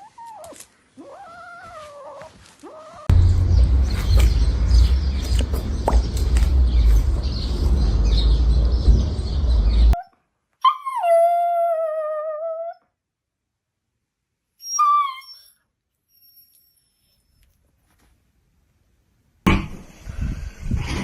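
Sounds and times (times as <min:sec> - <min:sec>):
loud low rumbling: 0:03.1 - 0:10.0.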